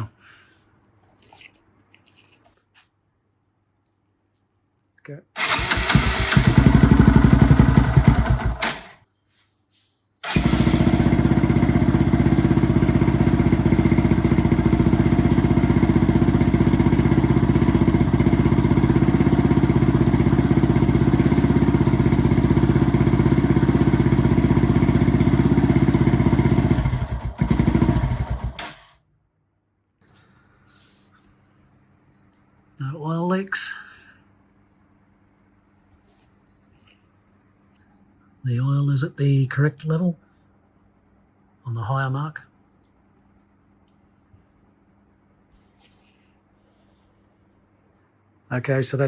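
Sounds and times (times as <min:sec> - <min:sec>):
motorcycle engine running and idling: 0:05.4 - 0:09.0, 0:10.2 - 0:28.9.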